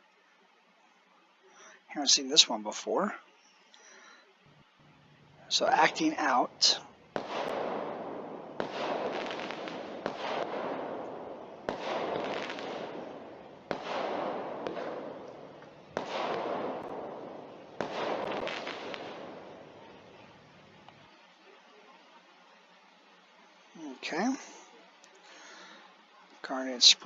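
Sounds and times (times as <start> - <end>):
firework shots firing: 5.5 - 20.5.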